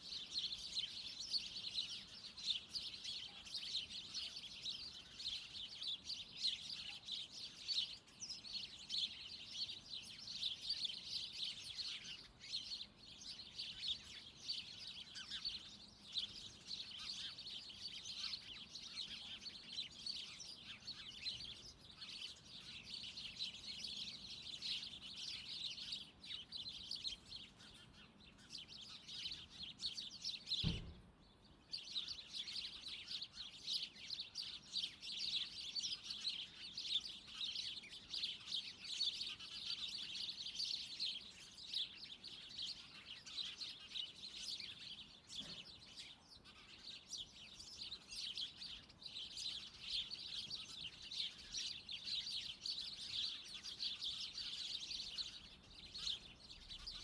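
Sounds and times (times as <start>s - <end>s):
small birds chirping: 0.0s - 57.0s
low thump: 30.6s - 31.1s.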